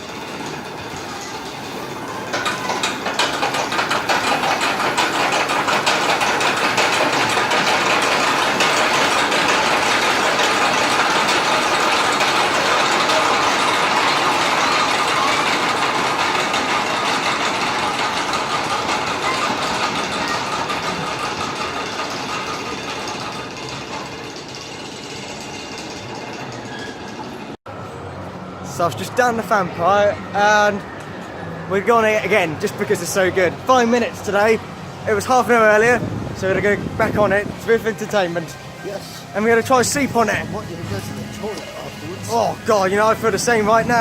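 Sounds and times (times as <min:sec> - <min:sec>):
rattling clatter: 0:00.0 - 0:27.6
roller coaster train rumbling: 0:00.0 - 0:44.0.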